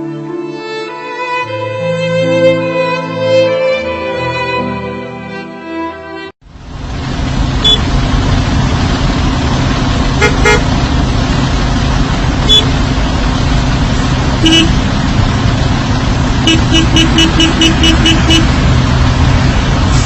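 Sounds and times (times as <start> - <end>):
road traffic rumble: 6.4 - 20.0
vehicle horn toots: 7.6 - 7.8, 10.2 - 10.7, 12.4 - 12.8, 14.4 - 14.8, 16.4 - 18.6.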